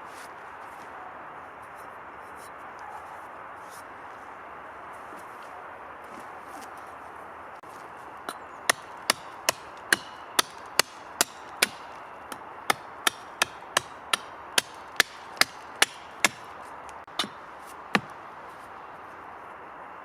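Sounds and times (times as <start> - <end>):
hand tool chopping wood: 8.2 - 18.2.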